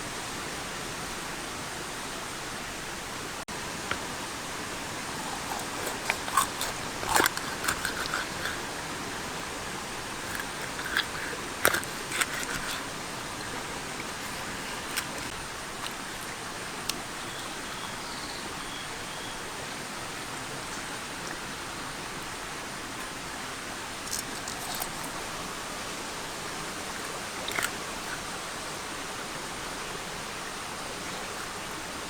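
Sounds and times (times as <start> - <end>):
person chewing crunchy food: 3.9 - 17.1, 24.1 - 25.4, 26.9 - 28.3.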